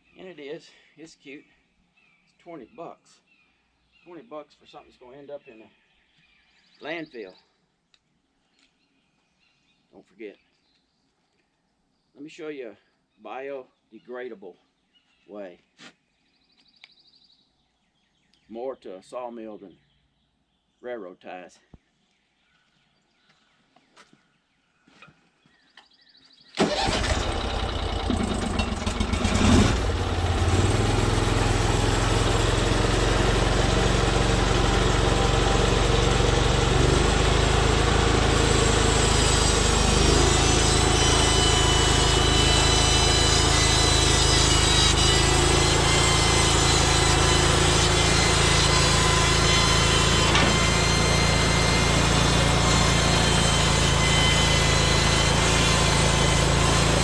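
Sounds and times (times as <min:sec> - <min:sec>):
sawmill engine starting and running: 0:26.6 - 0:57.0.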